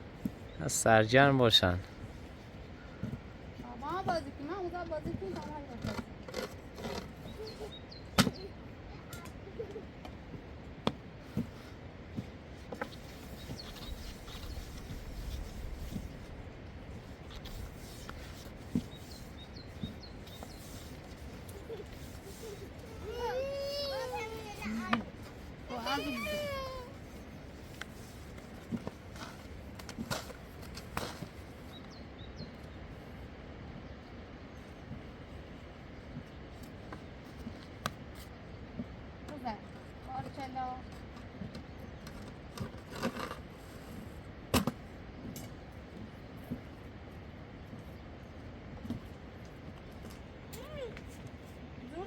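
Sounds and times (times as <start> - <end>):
low background noise: 0.0 - 52.0
child's voice: 3.6 - 5.8, 21.7 - 25.1, 25.7 - 27.0, 50.5 - 51.0.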